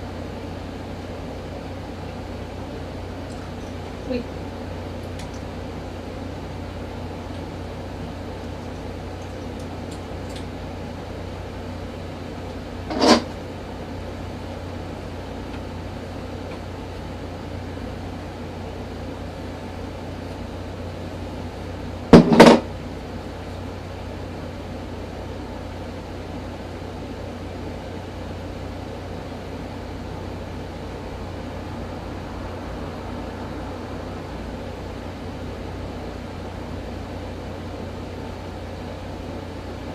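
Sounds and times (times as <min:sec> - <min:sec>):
hair dryer humming: 0:29.2 - 0:38.1.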